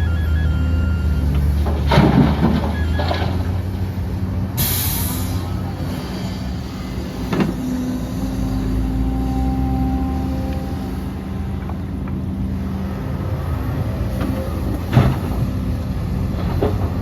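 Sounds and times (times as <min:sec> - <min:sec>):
heavy diesel engine running: 0:00.0 - 0:17.0
hiss of air: 0:04.6 - 0:07.3.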